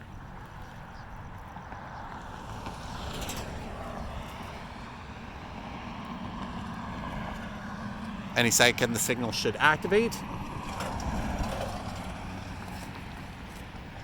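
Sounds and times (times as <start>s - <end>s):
distant vehicles rumbling: 0.0s - 14.0s
wind: 0.0s - 14.0s.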